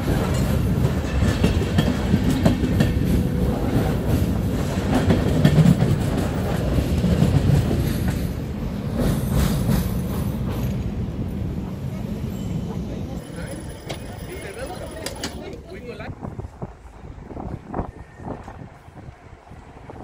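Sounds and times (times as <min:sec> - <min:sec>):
clacks over rail joints: 0:00.0 - 0:08.4, 0:13.3 - 0:15.7
electric locomotive passing: 0:00.0 - 0:20.0
train wheels rumbling: 0:00.0 - 0:20.0.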